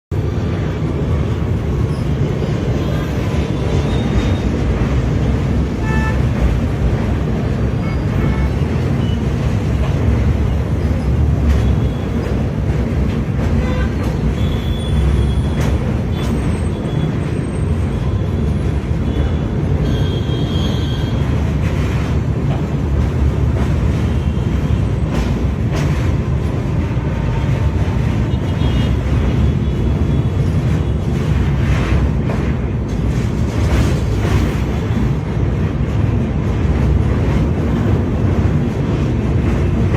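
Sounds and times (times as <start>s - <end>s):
train rumbling on rails: 0.1s - 39.9s
high rail squeaks: 14.0s - 17.8s.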